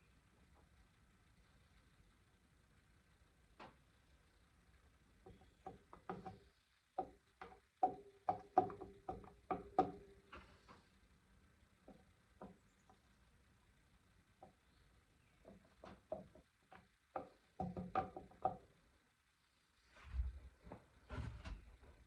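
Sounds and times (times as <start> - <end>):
knocks and clicks on metal: 5.2 - 10.2, 15.4 - 18.7.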